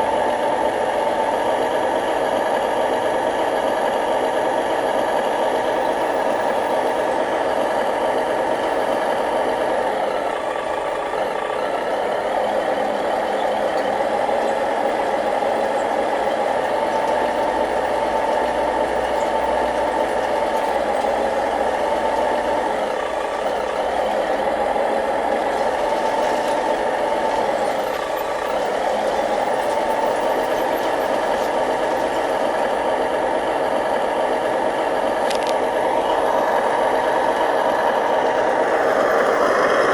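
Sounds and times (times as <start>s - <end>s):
drone of small motors and gearing: 13.6s - 39.9s.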